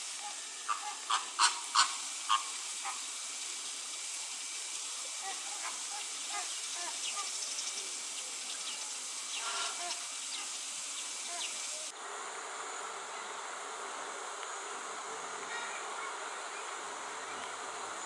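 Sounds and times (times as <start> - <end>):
cicadas droning: 0.0 - 18.0.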